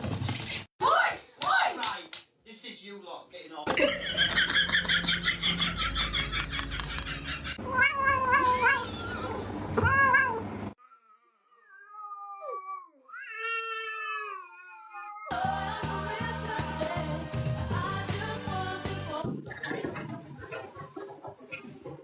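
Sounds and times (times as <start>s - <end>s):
cats meowing and yowling: 7.6s - 15.4s.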